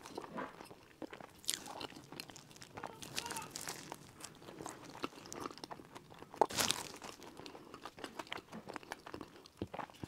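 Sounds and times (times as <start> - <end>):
chewing crisp bun: 0.0 - 10.0
plastic glove crinkling: 2.3 - 5.0.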